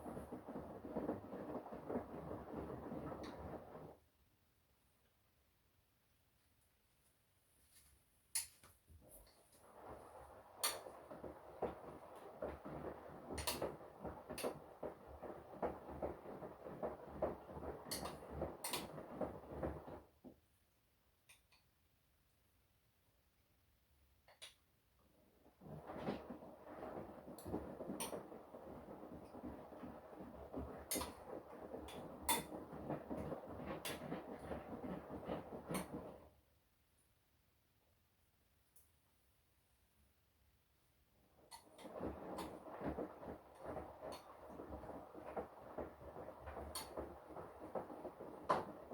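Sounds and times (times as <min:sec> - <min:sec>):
washing machine drum tumbling laundry: 0:00.0 - 0:04.0, 0:09.0 - 0:20.4, 0:25.1 - 0:36.4, 0:41.2 - 0:48.9.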